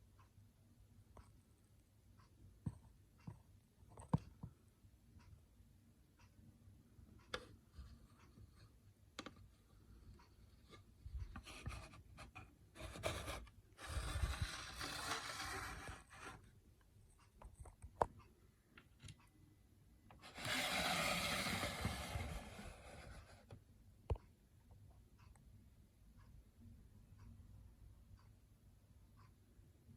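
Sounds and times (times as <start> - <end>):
rubbing and scraping: 11.4 - 16.5.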